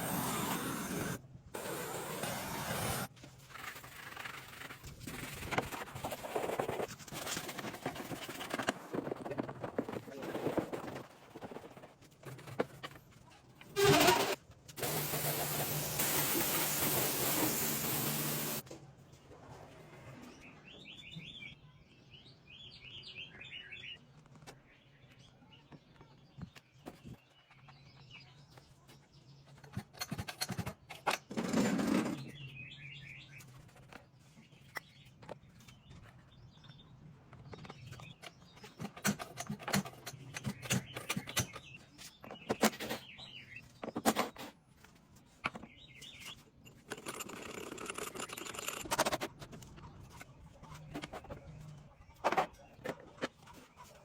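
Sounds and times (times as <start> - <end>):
loud steady hiss: 14.8 - 18.6.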